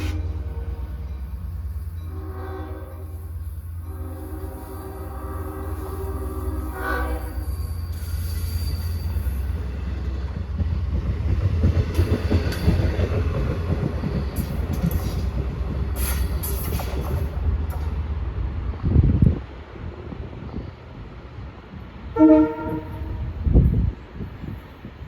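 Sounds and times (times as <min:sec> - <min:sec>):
train horn: 0:00.0 - 0:01.2, 0:02.0 - 0:07.8, 0:22.1 - 0:23.4
wheels clattering on rails: 0:07.8 - 0:18.2.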